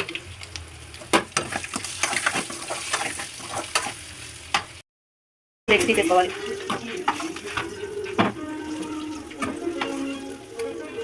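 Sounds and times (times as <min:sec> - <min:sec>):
light sizzle of hot oil: 0:00.0 - 0:04.8.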